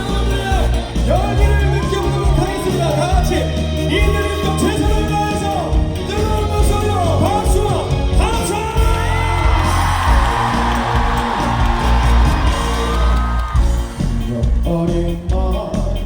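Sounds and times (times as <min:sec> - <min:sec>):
crowd whooping: 0:00.0 - 0:03.6, 0:08.6 - 0:14.6
live band music: 0:00.0 - 0:16.0.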